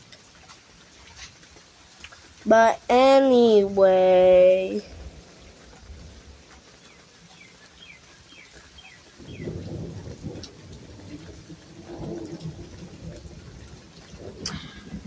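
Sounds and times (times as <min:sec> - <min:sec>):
steady rain: 0:00.0 - 0:15.0
thunder rumbling: 0:04.0 - 0:06.5, 0:09.2 - 0:15.0
bird chirping: 0:06.8 - 0:09.6.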